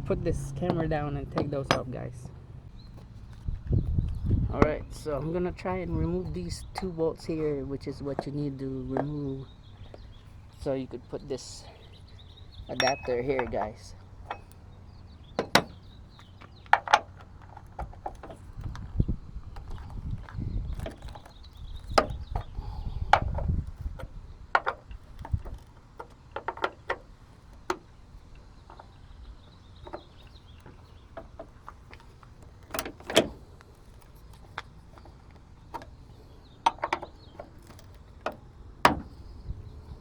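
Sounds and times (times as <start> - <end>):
low rumbling handling noise: 0.0 - 40.0
wrench clicking and clanking on bolts: 12.7 - 14.6.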